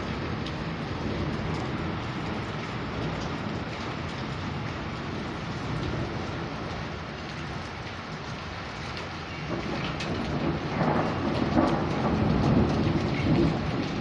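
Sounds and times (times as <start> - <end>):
heavy rain falling: 0.0 - 14.0
thunder rolling: 9.5 - 14.0.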